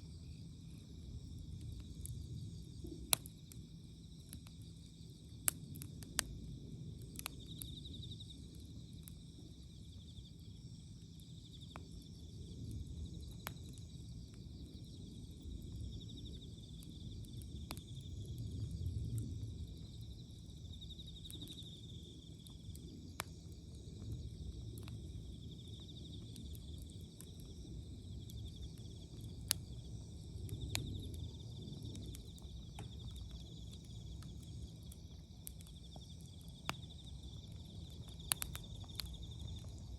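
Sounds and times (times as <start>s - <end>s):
insects trilling: 0.0s - 39.9s
wood fire crackling and popping: 0.1s - 39.9s.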